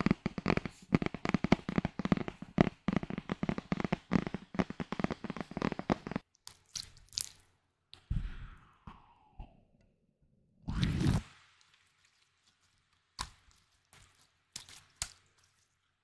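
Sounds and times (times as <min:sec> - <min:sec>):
sharp taps and clicks: 0:00.0 - 0:06.6.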